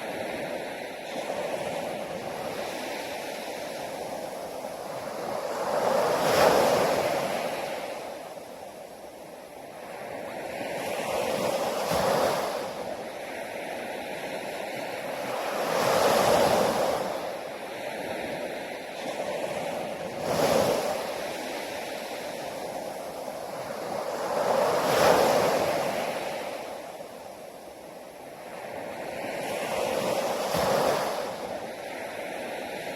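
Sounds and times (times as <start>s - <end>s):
sea waves breaking on shore: 0.0s - 32.9s.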